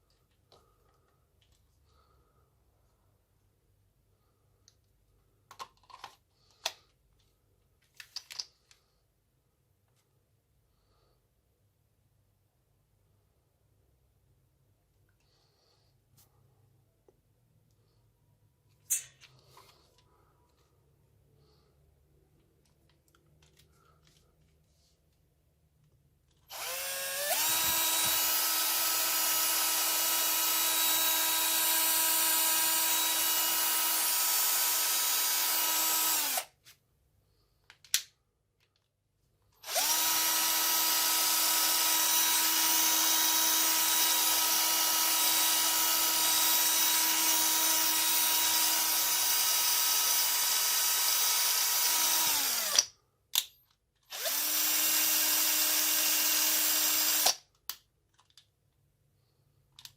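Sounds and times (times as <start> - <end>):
cordless drill whine: 26.5 - 36.5, 39.6 - 52.8, 54.1 - 57.4.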